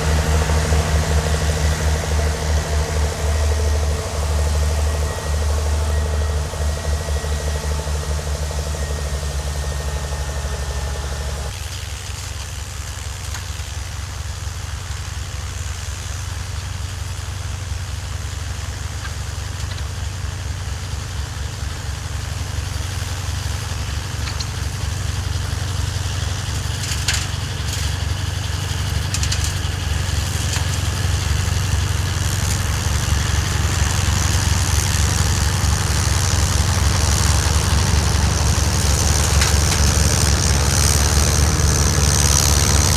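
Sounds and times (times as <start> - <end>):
engine running: 0.0 - 11.7, 18.8 - 42.9.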